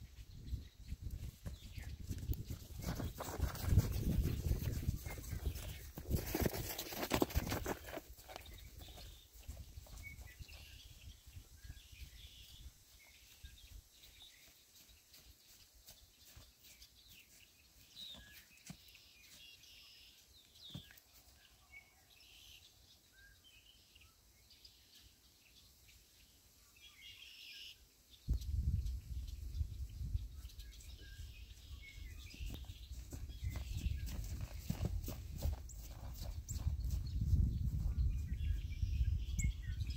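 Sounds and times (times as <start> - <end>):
faint bird chirps: 35.7 - 39.9.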